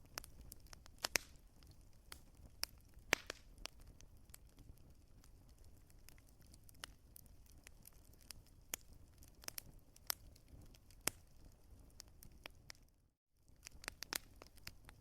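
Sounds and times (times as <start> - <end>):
firewood crackling and popping: 0.0 - 15.0
low rumble of fire: 0.0 - 15.0.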